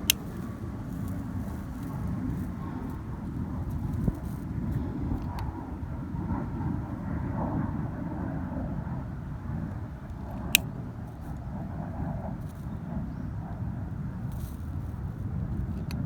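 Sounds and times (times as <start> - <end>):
fire popping: 0.0 - 5.6
campfire crackling: 0.0 - 6.2
wind on microphone: 0.0 - 16.0.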